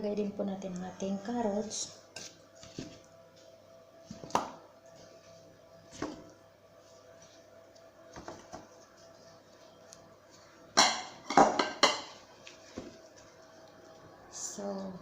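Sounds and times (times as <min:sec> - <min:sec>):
dishes and utensils clattering: 0:10.8 - 0:12.2.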